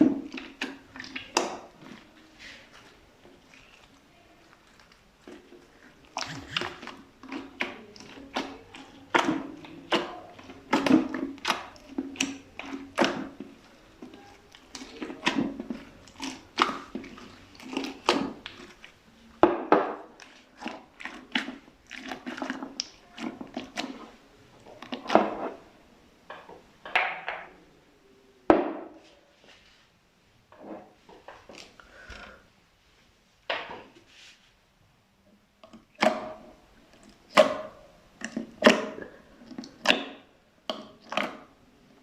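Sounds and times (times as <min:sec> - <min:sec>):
slime squelching and popping: 0:00.0 - 0:25.5.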